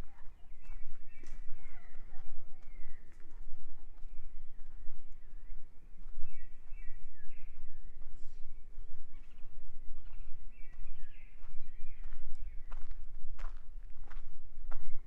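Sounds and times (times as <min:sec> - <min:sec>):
birds singing: 0:00.0 - 0:13.0.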